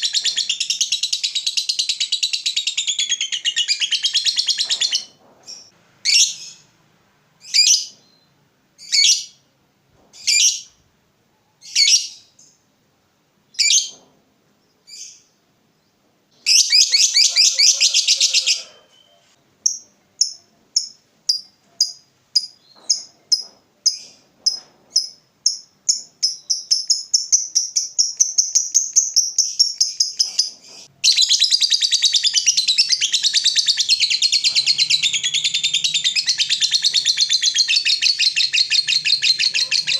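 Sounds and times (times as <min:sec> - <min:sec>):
lovebird chattering trill: 0:25.0 - 0:39.9.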